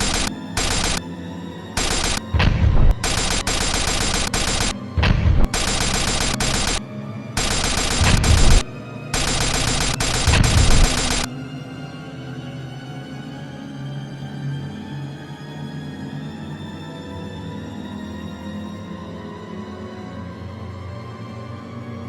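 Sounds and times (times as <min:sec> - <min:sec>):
machine-gun fire: 0:00.0 - 0:01.0, 0:01.8 - 0:06.8, 0:07.4 - 0:11.3
dramatic background music: 0:00.0 - 0:22.0
deep boom: 0:02.2 - 0:03.4, 0:05.0 - 0:05.6.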